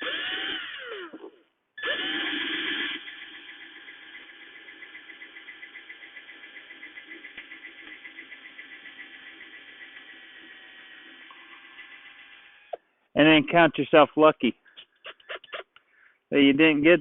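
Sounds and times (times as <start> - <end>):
power drill running slowly: 0.0 - 12.8.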